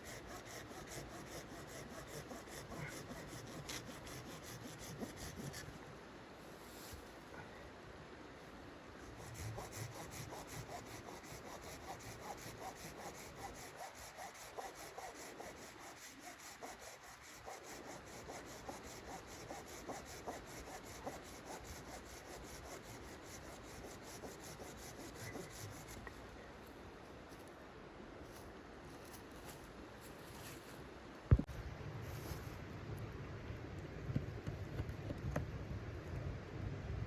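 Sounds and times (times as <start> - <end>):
hand saw cutting wood: 0.0 - 5.7, 9.1 - 26.0.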